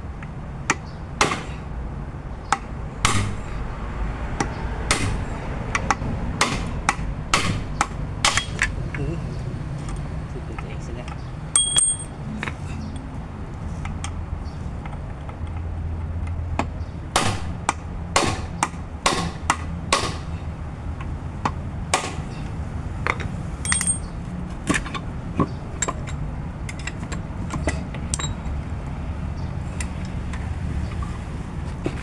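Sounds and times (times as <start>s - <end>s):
hammer striking metal: 1.2s - 1.6s, 3.0s - 3.5s, 4.4s - 8.8s, 11.6s - 12.2s, 17.2s - 20.4s
metallic taps and clinks: 9.8s - 10.2s, 11.1s - 12.6s, 23.0s - 25.0s, 25.8s - 28.6s.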